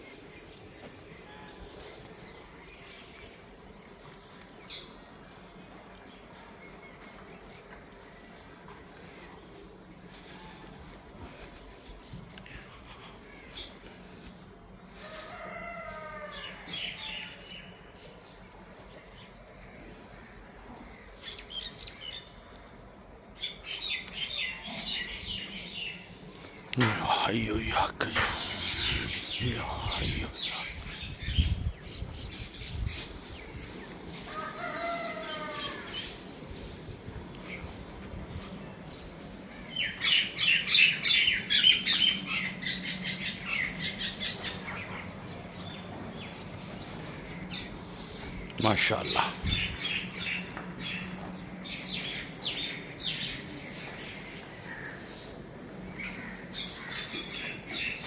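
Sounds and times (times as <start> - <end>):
small birds chirping: 0.0 - 58.0
steady low hum: 17.3 - 58.0.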